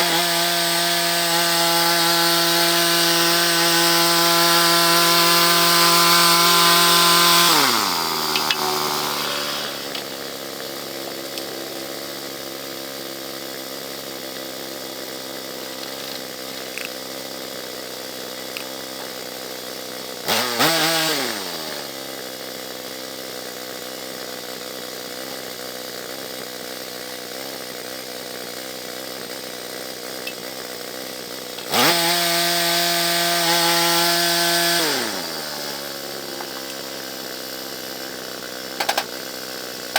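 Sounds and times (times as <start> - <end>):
small gasoline engine revving: 0.0 - 39.9.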